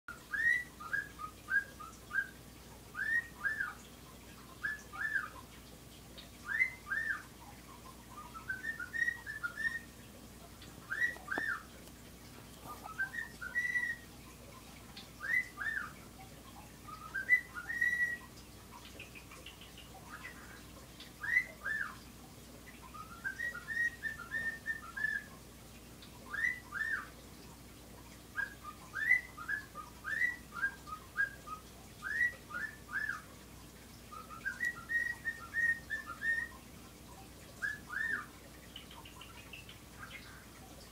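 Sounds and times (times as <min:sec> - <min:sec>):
pet bird whistling: 0:00.3 - 0:02.4, 0:03.0 - 0:03.8, 0:04.6 - 0:05.3, 0:06.5 - 0:07.2, 0:08.2 - 0:09.9, 0:10.9 - 0:11.7, 0:12.7 - 0:14.0, 0:15.2 - 0:15.9, 0:16.9 - 0:18.2, 0:21.2 - 0:22.0, 0:23.0 - 0:25.3, 0:26.3 - 0:27.1, 0:28.4 - 0:33.2, 0:34.2 - 0:36.6, 0:37.6 - 0:38.3.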